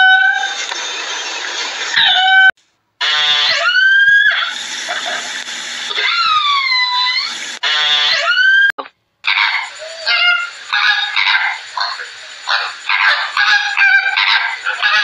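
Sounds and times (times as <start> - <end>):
animal high cries: 2.0 - 5.1, 5.9 - 8.7, 9.3 - 15.0.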